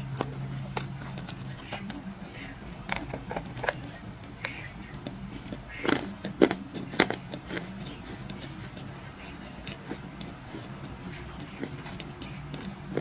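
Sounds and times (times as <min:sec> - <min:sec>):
clay being crushed: 0:00.0 - 0:07.7.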